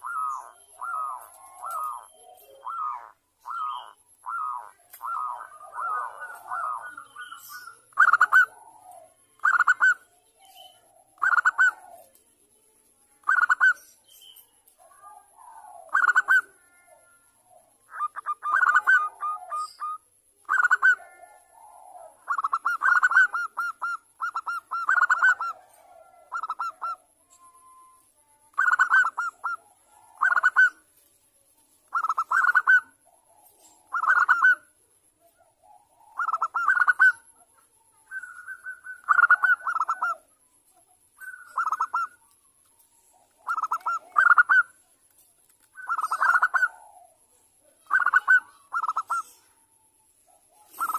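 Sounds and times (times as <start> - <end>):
dove cooing: 0.0 - 12.2, 13.2 - 13.8, 14.8 - 30.9, 31.8 - 40.4, 41.2 - 42.3, 42.9 - 44.8, 45.7 - 50.9.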